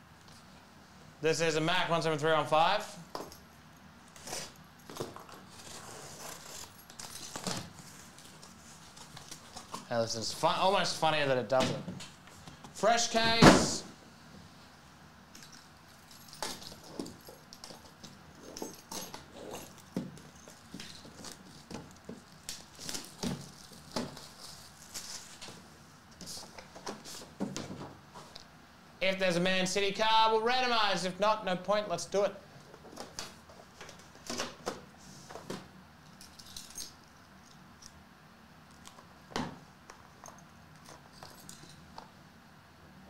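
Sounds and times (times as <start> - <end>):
objects rustling and clicking: 3.1 - 9.9, 15.3 - 28.5, 32.6 - 38.0, 38.7 - 42.2.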